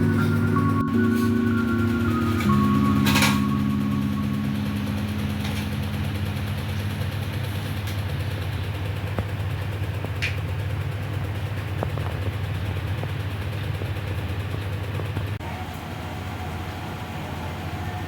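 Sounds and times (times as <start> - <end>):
musical tone: 0.0 - 8.5.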